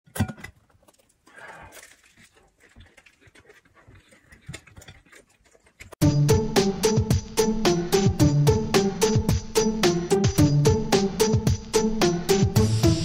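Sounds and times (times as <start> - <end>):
person chewing: 0.8 - 6.0.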